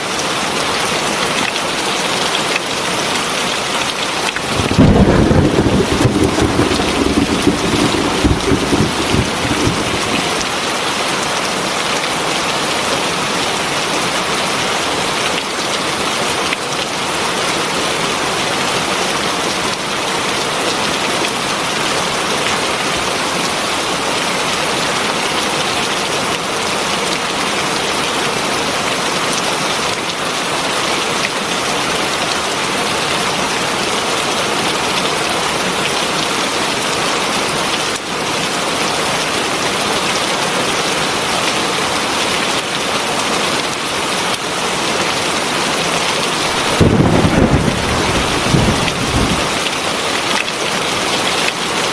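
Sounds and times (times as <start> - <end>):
heavy rain pouring: 2.8 - 51.9
low thunder rumble: 4.4 - 10.7, 46.4 - 49.6.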